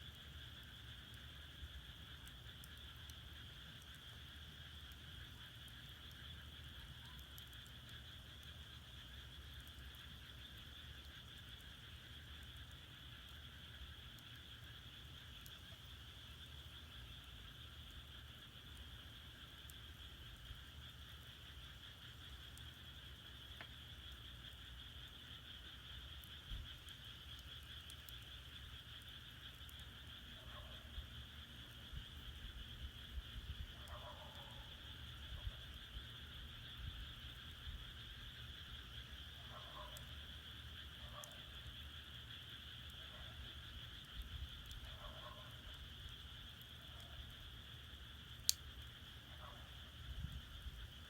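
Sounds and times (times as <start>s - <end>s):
wood fire crackling: 0.0s - 30.2s, 43.5s - 44.8s, 45.6s - 49.1s
frogs croaking: 0.0s - 51.0s
firewood crackling: 45.7s - 49.1s.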